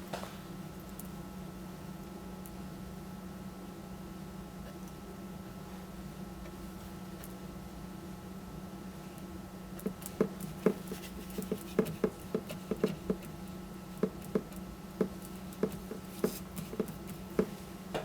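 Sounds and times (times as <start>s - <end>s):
paintbrush tapping on canvas: 9.8s - 13.3s, 14.0s - 17.6s.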